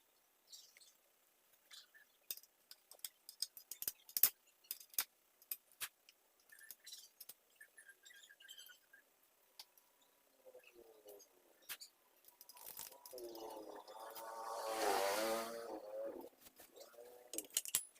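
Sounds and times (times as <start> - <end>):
metal parts clinking and tapping: 2.3 - 5.6, 17.3 - 17.9.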